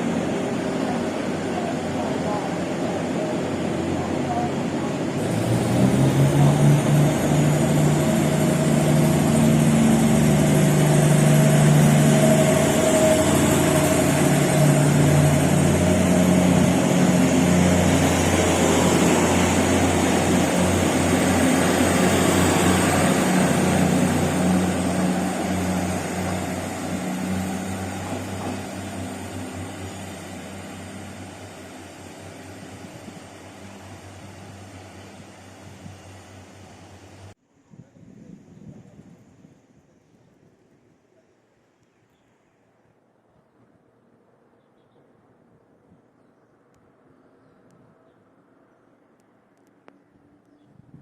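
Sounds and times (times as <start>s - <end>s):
train wheels rumbling on rails: 0.0s - 37.4s
train engine drone: 0.0s - 40.2s.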